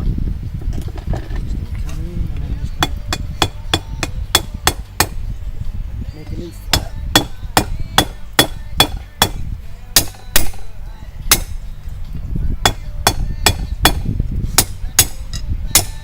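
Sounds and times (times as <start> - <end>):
hammer striking steel on anvil: 6.7 - 9.4, 10.0 - 10.6, 11.3 - 11.6, 12.6 - 16.0.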